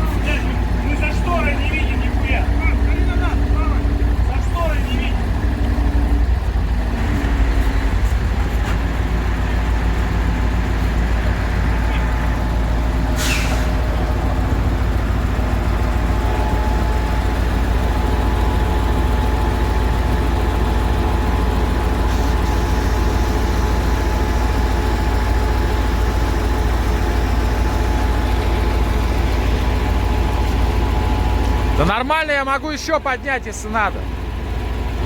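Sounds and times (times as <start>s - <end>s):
truck diesel engine running: 0.0s - 35.0s
air hiss: 13.2s - 13.8s.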